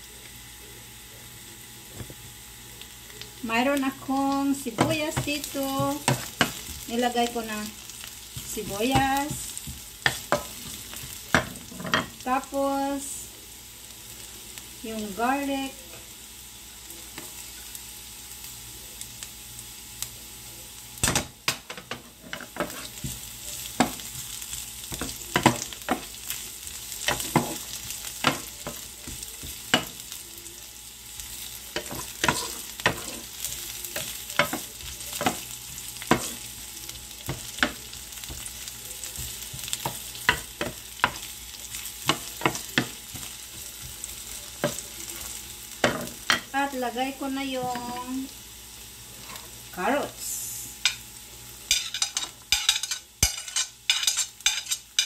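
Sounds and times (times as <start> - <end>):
onions and garlic sizzling in oil: 0.0 - 55.0
wooden spatula scraping a pan: 22.2 - 23.1, 31.8 - 33.3.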